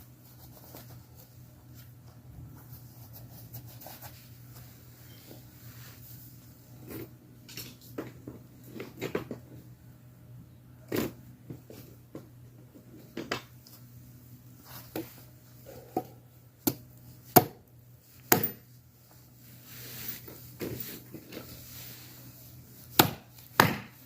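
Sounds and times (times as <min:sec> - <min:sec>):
faint steady hum: 0:00.0 - 0:24.0
chopping on wood: 0:23.0 - 0:24.0.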